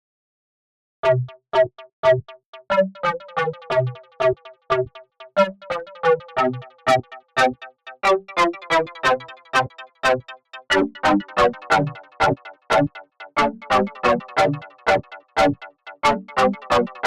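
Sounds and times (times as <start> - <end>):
synth plucked bass chords: 1.0 - 4.9, 5.8 - 14.7.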